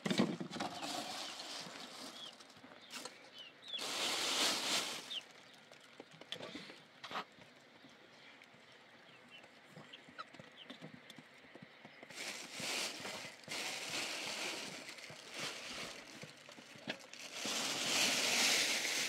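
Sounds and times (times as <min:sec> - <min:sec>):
small birds chirping: 0:00.8 - 0:06.2, 0:07.7 - 0:12.5.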